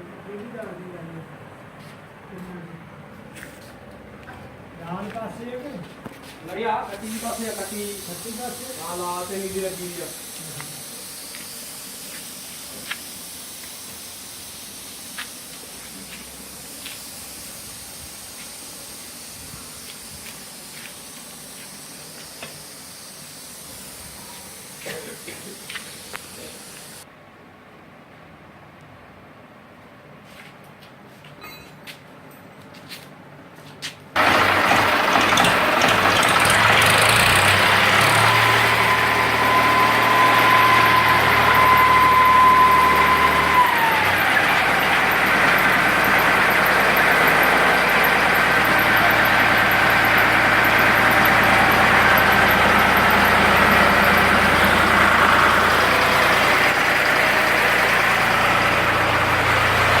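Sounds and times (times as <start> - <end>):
tractor engine running: 34.2 - 60.0.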